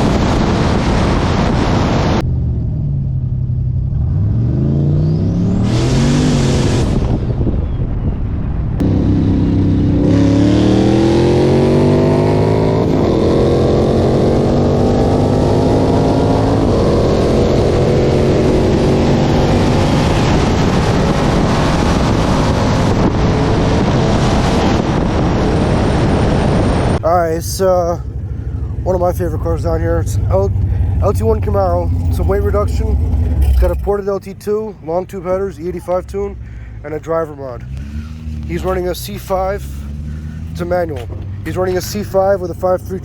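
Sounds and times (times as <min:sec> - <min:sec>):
car engine revving at full throttle: 0:00.0 - 0:43.0
gear shifts: 0:27.0 - 0:43.0.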